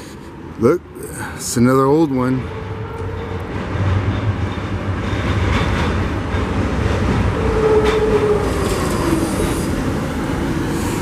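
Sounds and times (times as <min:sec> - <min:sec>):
streetcar wheels rumbling on rails: 0:00.0 - 0:11.0.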